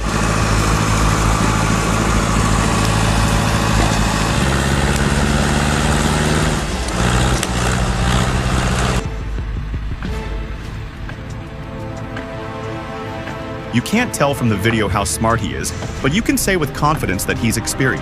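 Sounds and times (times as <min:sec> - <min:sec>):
diesel engine under load: 0:00.0 - 0:18.0.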